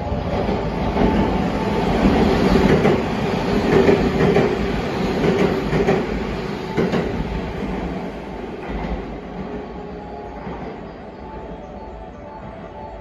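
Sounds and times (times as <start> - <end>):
train running noise: 0.0 - 13.0
train wheels clacking over rail joints: 2.1 - 6.1.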